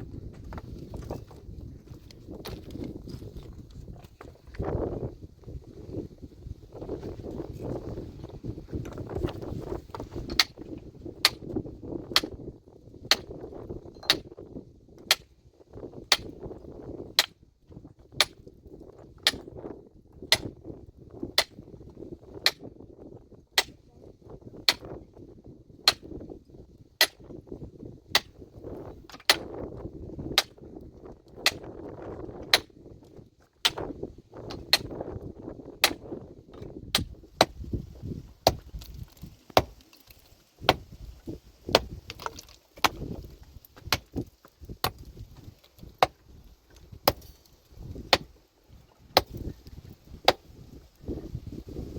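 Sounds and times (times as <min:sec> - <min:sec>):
metal tool striking rock: 0:09.9 - 0:10.6, 0:13.1 - 0:14.4, 0:15.0 - 0:15.3, 0:16.1 - 0:16.4, 0:18.2 - 0:18.4, 0:19.2 - 0:19.5, 0:20.3 - 0:20.5, 0:24.7 - 0:25.0, 0:25.8 - 0:26.2, 0:27.0 - 0:27.3, 0:28.1 - 0:28.4, 0:29.1 - 0:29.5, 0:30.4 - 0:30.6, 0:31.4 - 0:31.7, 0:33.6 - 0:33.9, 0:34.5 - 0:35.0, 0:35.8 - 0:37.6, 0:38.4 - 0:38.9, 0:39.6 - 0:39.8, 0:41.7 - 0:43.2, 0:43.8 - 0:44.2, 0:47.0 - 0:47.5.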